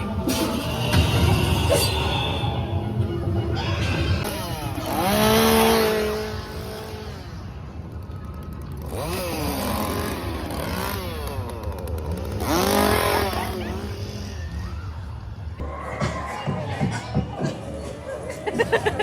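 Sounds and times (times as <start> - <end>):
chainsaw engine revving: 4.2 - 7.5, 8.6 - 14.3.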